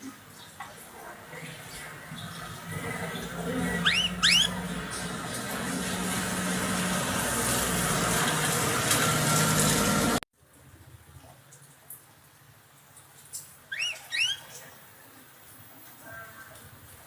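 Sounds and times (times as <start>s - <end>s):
bird rising and falling notes: 3.0s - 8.1s.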